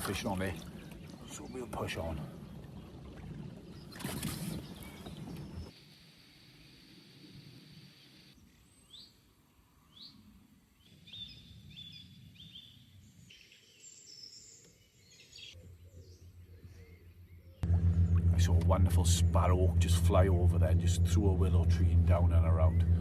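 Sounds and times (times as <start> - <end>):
songbirds chirping and twittering: 0.0 - 5.8, 8.0 - 23.0
low pulsing hum: 17.6 - 23.0.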